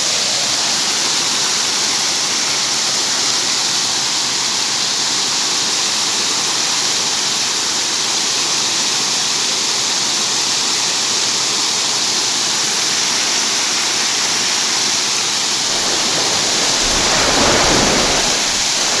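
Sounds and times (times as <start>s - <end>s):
heavy rain falling: 15.3s - 19.0s
whoosh with low rumble: 15.5s - 19.0s.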